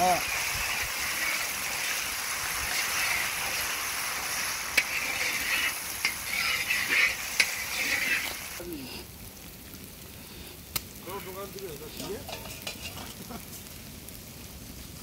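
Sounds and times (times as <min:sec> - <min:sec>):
vegetables sizzling in pan: 0:00.0 - 0:15.0
metal spatula scraping pan: 0:00.2 - 0:03.8, 0:04.7 - 0:08.6, 0:12.1 - 0:13.1
metal clinking on iron: 0:12.0 - 0:13.1.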